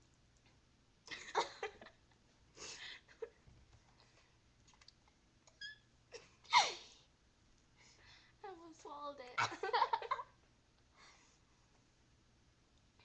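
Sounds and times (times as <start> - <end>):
brief squeak: 5.5 - 5.9.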